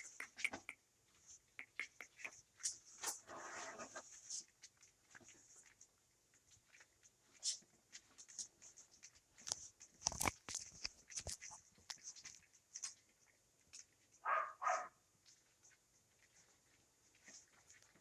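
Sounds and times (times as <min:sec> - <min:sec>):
puppies chewing and smacking: 0:00.0 - 0:02.8, 0:07.8 - 0:14.0
puppy vocal sounds: 0:01.6 - 0:02.4.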